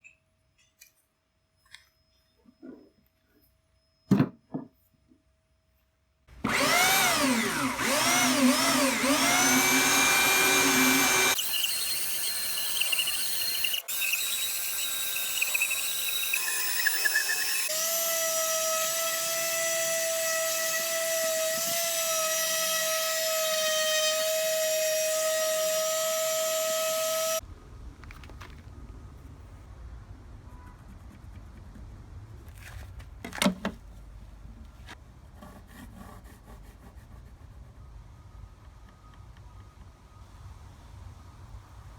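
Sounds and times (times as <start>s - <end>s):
electric sander on wood: 6.4s - 24.3s.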